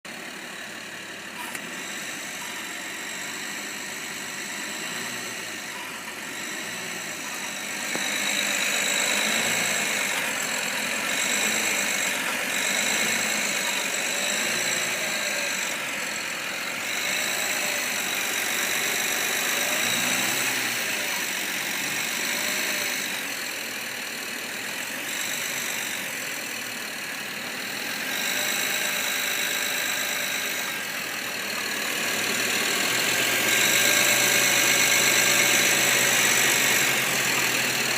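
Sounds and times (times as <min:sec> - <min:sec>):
car engine running: 0:00.0 - 0:37.9
high-pitched engine squeak: 0:01.3 - 0:03.5, 0:04.2 - 0:23.2.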